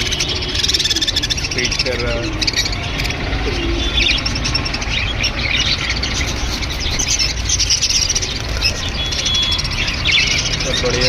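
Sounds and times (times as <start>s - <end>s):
budgerigars chattering: 0.0s - 11.0s
steady bird whistle: 0.0s - 11.0s.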